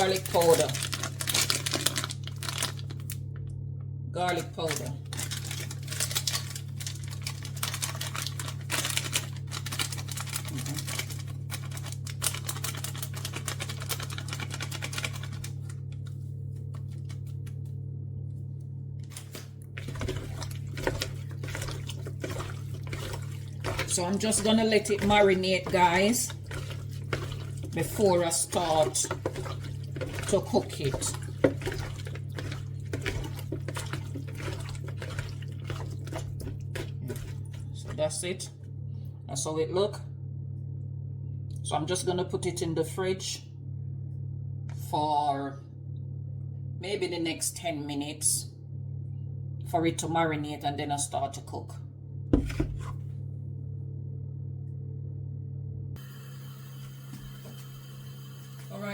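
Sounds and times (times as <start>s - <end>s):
wet splashing and squelching: 0.0s - 3.2s, 4.6s - 15.8s, 19.1s - 38.2s
steady low hum: 0.0s - 58.9s.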